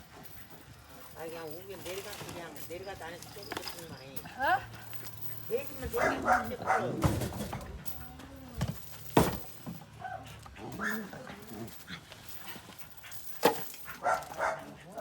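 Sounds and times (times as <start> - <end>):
dog whimpering and yipping: 10.0 - 11.7.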